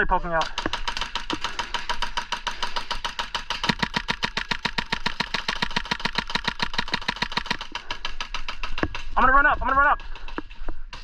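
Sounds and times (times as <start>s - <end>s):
airsoft gun rapid fire: 0.4s - 11.0s.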